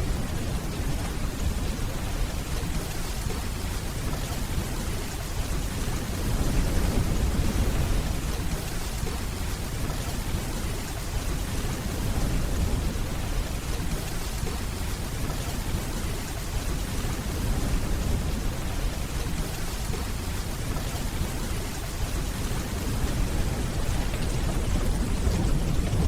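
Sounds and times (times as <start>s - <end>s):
steady rainfall: 0.0s - 26.0s
distant thunder rumble: 22.2s - 26.0s.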